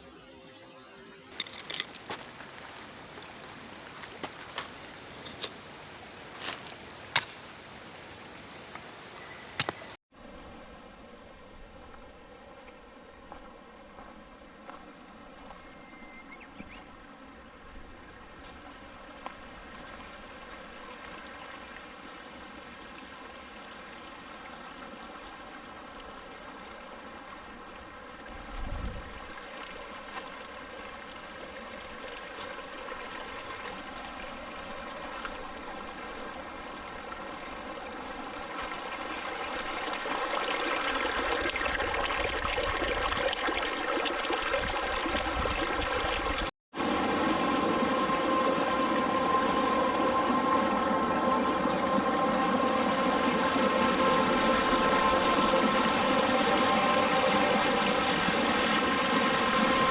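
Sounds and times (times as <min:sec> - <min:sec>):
mountain stream babbling: 0:01.3 - 0:59.9.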